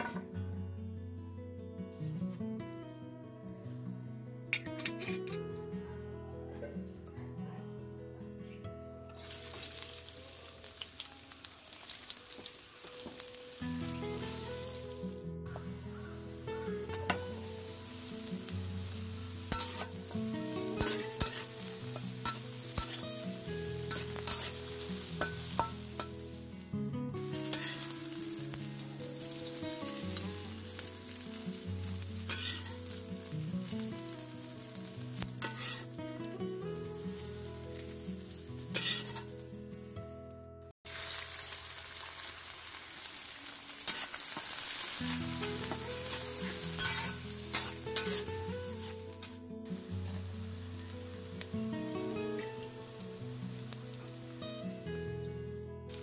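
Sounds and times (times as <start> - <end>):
vegetables sizzling in oil: 9.1 - 40.1, 40.9 - 56.0
background music: 12.1 - 40.7
spatula scraping a pan: 19.5 - 20.0, 20.8 - 23.0, 23.9 - 26.1, 27.4 - 27.9, 32.2 - 32.9, 35.4 - 36.0, 38.7 - 39.4, 43.8 - 49.4.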